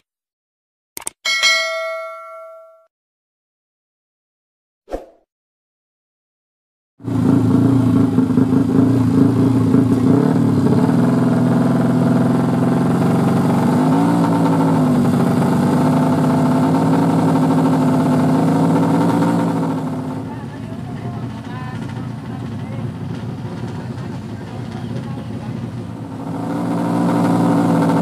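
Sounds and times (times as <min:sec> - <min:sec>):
single-cylinder engine running: 0:07.0 - 0:28.0.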